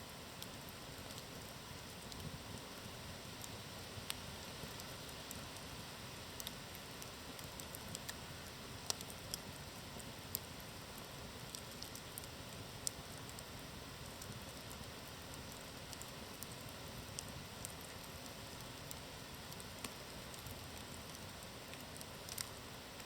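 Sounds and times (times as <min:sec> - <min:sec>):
campfire hissing and crackling: 0:00.0 - 0:23.0
fire snapping: 0:00.4 - 0:02.7, 0:03.3 - 0:23.0.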